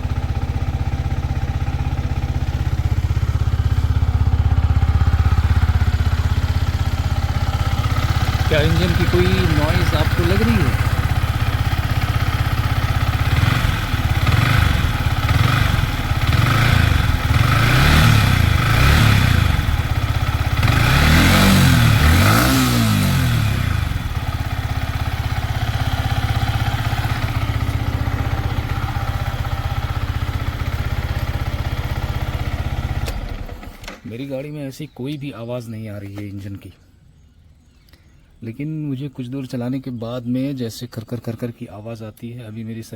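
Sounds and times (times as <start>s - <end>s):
motorcycle engine revving and idling: 0.0s - 34.0s.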